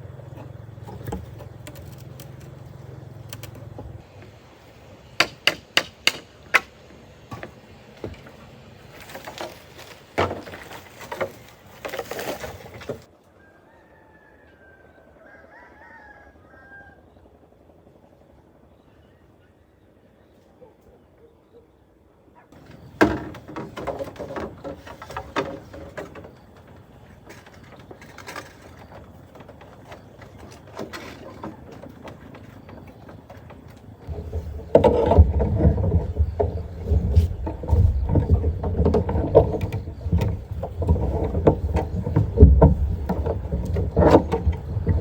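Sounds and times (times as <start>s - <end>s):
knocks and clatters: 0.0s - 4.1s, 5.2s - 13.1s, 22.6s - 45.0s.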